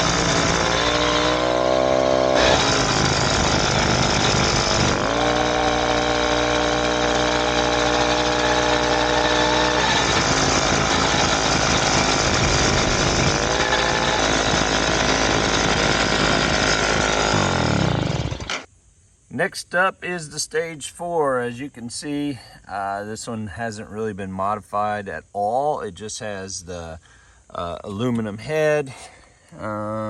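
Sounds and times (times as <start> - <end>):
two-stroke engine running hard: 0.0 - 18.6.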